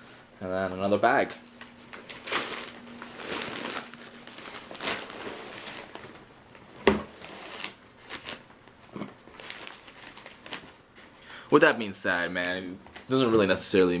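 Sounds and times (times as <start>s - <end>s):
plastic bag crinkling: 1.4s - 11.2s.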